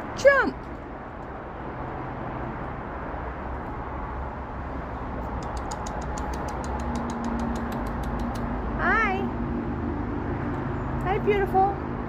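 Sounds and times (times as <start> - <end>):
low rumble of distant traffic: 0.0 - 12.0
fast high ticks: 5.2 - 8.6.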